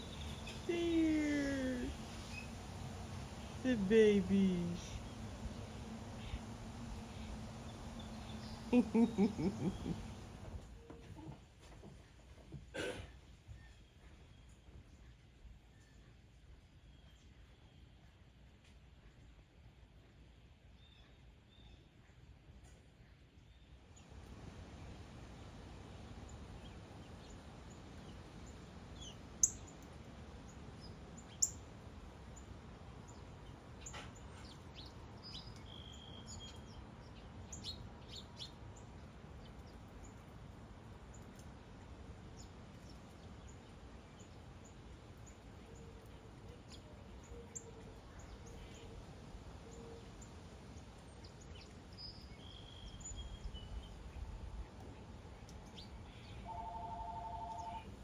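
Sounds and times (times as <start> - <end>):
birds chirping: 0.0 - 10.5
low background hiss: 0.0 - 58.0.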